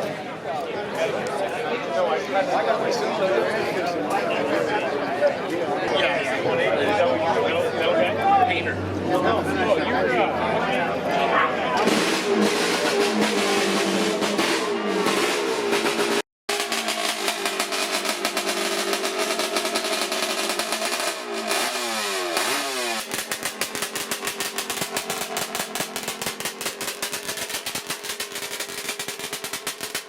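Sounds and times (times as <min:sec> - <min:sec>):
two-stroke motorcycle engine revving: 0:11.8 - 0:30.0.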